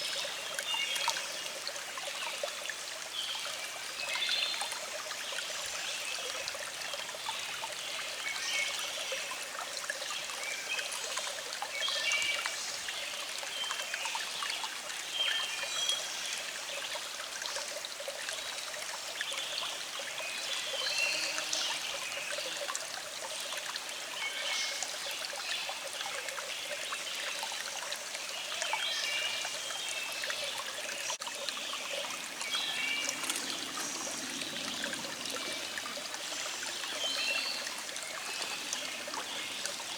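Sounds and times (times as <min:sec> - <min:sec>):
stream babbling over rocks: 0:00.0 - 0:39.9
birds chirping: 0:31.0 - 0:39.9.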